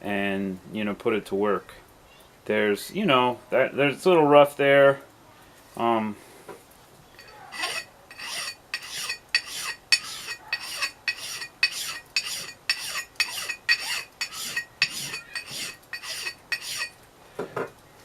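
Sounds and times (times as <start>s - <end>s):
abrasive strokes on axe head: 7.2s - 17.0s
faint metallic ring: 7.2s - 17.0s.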